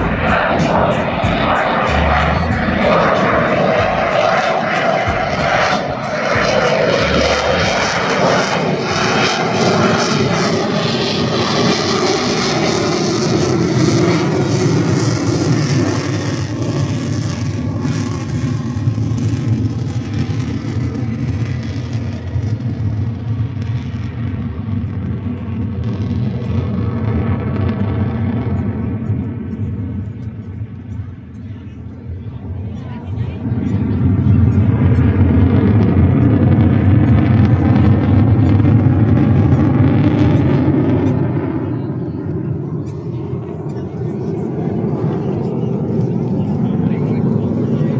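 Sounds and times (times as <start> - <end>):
aircraft engines rumbling overhead: 0.0 - 47.9.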